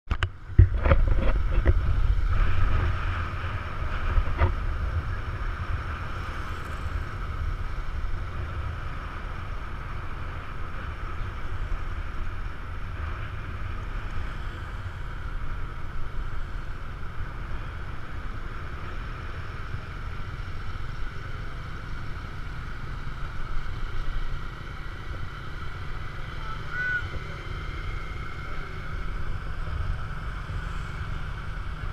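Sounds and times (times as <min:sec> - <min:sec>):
street traffic: 0:00.1 - 0:31.9
wind buffeting microphone: 0:00.2 - 0:18.3.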